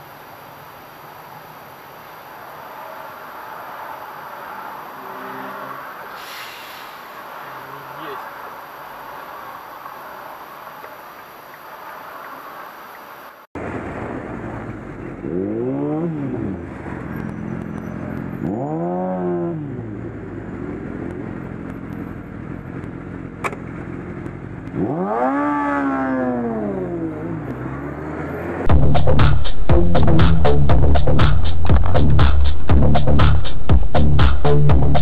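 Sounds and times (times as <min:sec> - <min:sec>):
road noise: 0:00.0 - 0:35.0
vehicle engine revving: 0:02.0 - 0:29.3.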